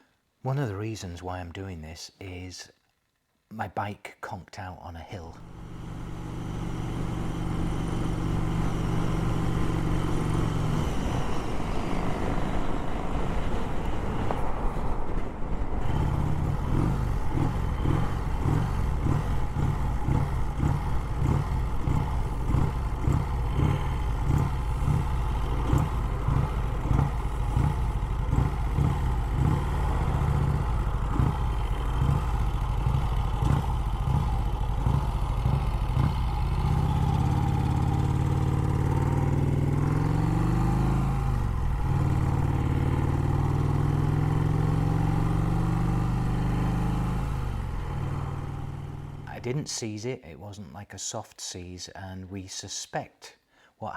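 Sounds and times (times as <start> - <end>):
motorcycle engine running: 5.4 - 14.4, 15.8 - 49.3.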